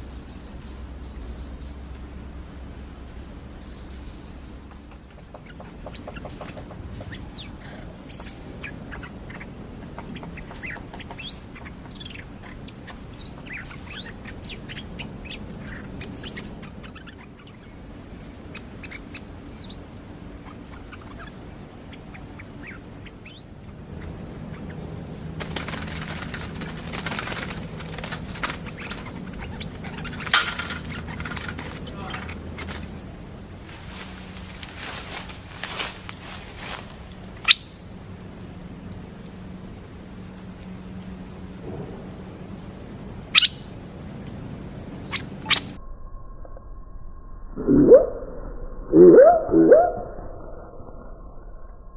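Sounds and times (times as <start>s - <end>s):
songbirds chirping: 0.0s - 45.8s
cage rattling: 23.8s - 33.2s
bird wings beating against cage: 25.2s - 33.0s.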